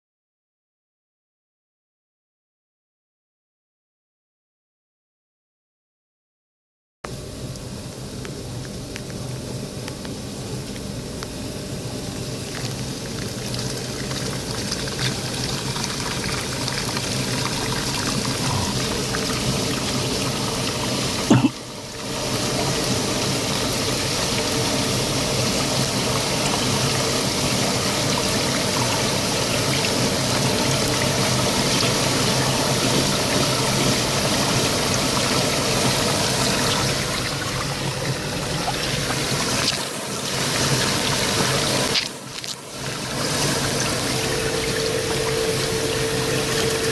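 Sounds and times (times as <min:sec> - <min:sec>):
water pouring: 0:12.5 - 0:21.0.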